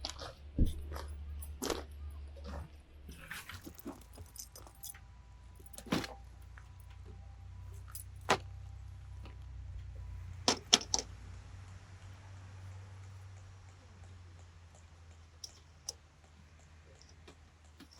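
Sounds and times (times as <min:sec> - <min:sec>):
metallic clinks and knocks: 0:00.0 - 0:07.0, 0:07.7 - 0:08.5, 0:15.4 - 0:16.0
low steady rumble: 0:00.0 - 0:17.9.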